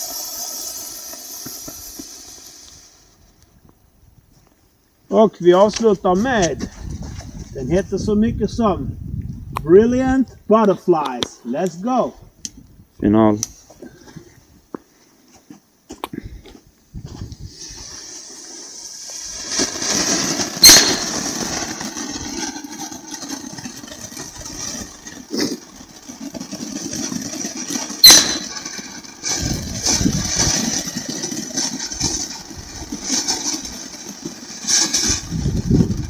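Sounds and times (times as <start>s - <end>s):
firework fountain hissing: 0.0s - 3.6s, 17.4s - 36.0s
sharp firework bangs: 19.3s - 22.4s, 28.0s - 30.9s.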